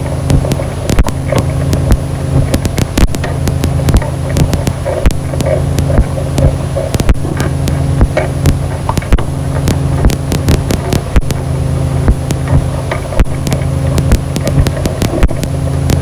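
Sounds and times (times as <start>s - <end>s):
irregular clicks and crackles: 0.0s - 16.0s
low droning hum tones: 0.0s - 16.0s.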